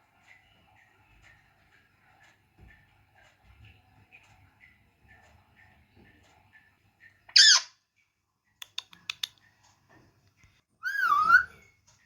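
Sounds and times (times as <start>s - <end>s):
parrot squawking: 7.3s - 7.7s, 10.8s - 11.6s.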